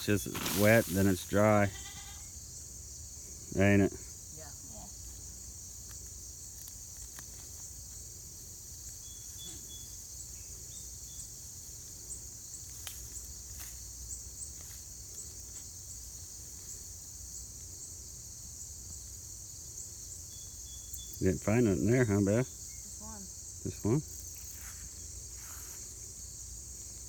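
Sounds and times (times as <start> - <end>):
hands digging in soil: 0.0 - 1.6
insect chorus buzzing and chirping: 0.0 - 27.0.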